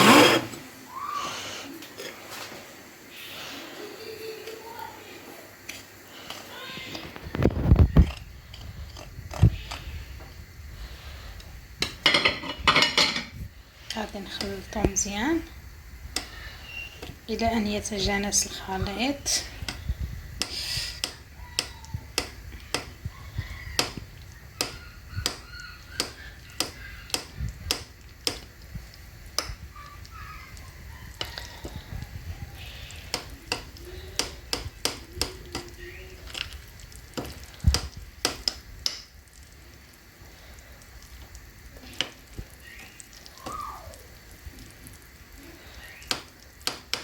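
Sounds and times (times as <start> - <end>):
utensil stirring thick batter: 13.8 - 15.5, 16.1 - 47.0.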